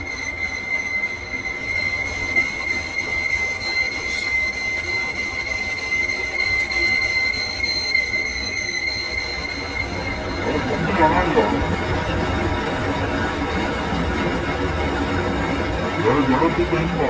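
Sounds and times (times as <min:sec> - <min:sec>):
machine metallic squeal: 0:00.0 - 0:17.0
low machine rumble: 0:09.6 - 0:17.0.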